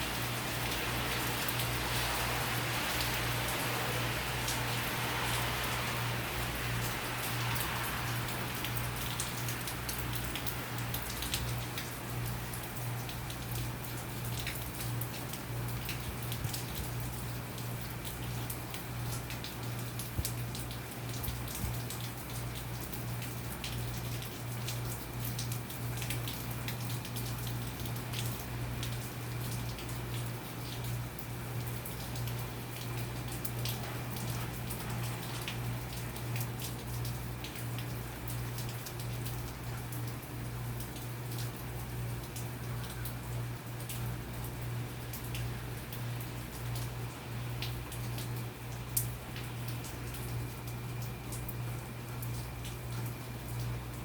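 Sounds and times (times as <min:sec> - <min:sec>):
heavy rain falling: 0:00.0 - 0:22.2, 0:25.9 - 0:54.0
raindrops ticking on a surface: 0:00.0 - 0:54.0.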